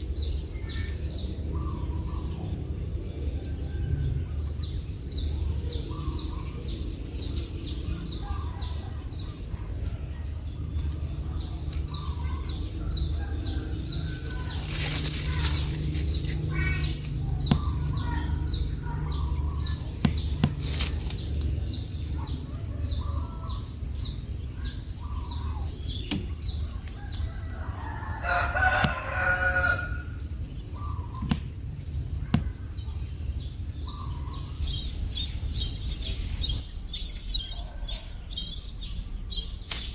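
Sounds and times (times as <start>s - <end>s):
low steady hum: 0.0s - 37.7s
rustle: 13.4s - 16.9s, 20.6s - 30.3s
sharp clicks: 17.0s - 18.1s, 20.0s - 21.6s, 30.2s - 32.6s, 39.7s - 39.9s
rooster-like bird call: 26.5s - 30.2s, 37.4s - 38.7s.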